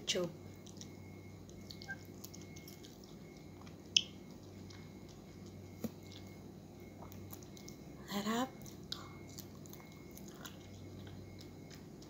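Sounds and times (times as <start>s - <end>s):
steady low hum: 0.0s - 12.0s
wet chewing of soft fruit: 0.4s - 12.0s.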